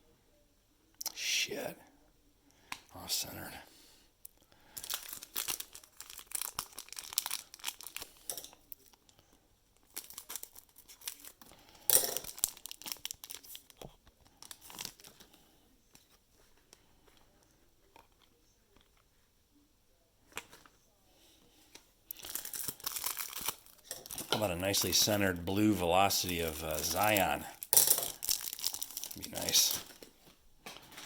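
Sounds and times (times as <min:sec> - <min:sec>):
plastic wrappers crinkling and tearing: 0:04.6 - 0:15.4, 0:22.1 - 0:31.0
cards clicking and rustling: 0:22.1 - 0:31.0.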